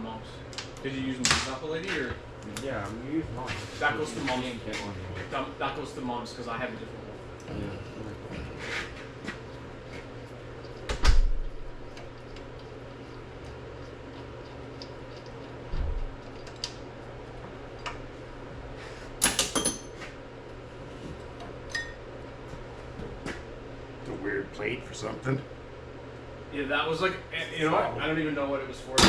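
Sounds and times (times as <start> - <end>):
steady low hum: 0.0 - 29.0
metal clanks: 19.2 - 20.0.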